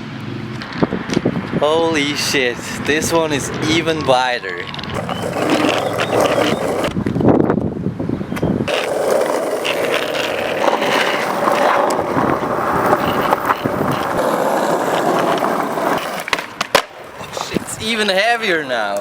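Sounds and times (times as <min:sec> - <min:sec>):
skateboard wheels rumbling: 0:04.6 - 0:07.4, 0:08.6 - 0:19.0.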